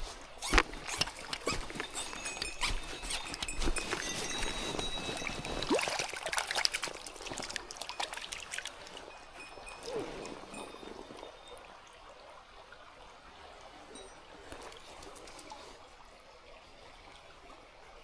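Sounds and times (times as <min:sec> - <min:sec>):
stream flowing and trickling: 0:00.0 - 0:18.0
close splashes and clicks: 0:00.1 - 0:11.5.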